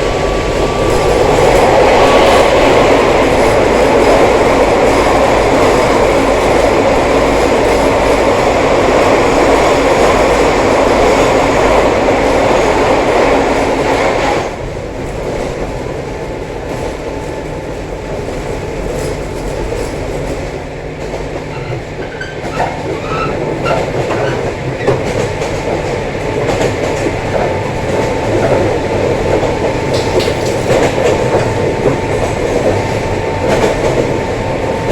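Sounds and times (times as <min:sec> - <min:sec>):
electric train running: 0:00.0 - 0:14.4
wheels clicking over rail joints: 0:21.0 - 0:34.2.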